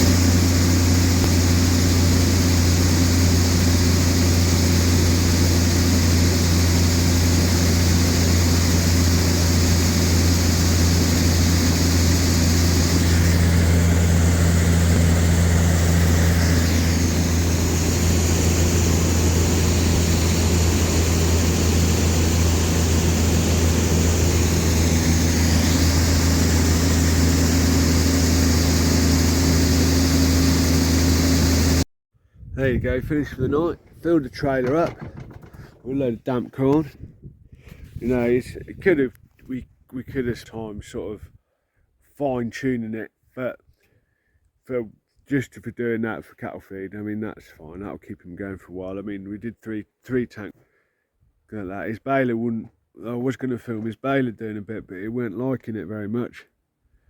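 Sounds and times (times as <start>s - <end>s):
combine harvester droning: 0.0s - 31.8s, 32.8s - 36.9s.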